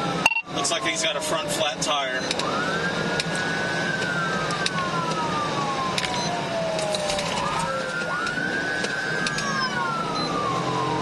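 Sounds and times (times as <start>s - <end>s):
police siren wailing: 0.0s - 11.0s
road and engine noise: 0.0s - 11.0s
sharp clicks: 2.2s - 2.5s, 8.0s - 9.5s.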